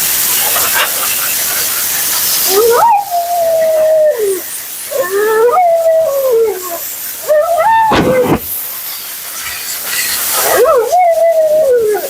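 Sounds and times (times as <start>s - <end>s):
steady high hiss: 0.0s - 12.0s
dog howling: 2.5s - 8.5s, 10.4s - 12.0s
harsh dog yelp: 7.2s - 8.5s.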